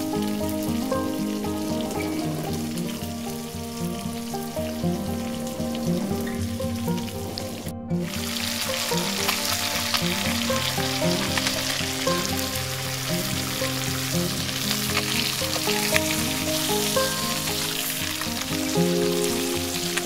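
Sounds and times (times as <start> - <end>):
background music: 0.0 - 20.0
fish frying in oil: 8.1 - 20.0.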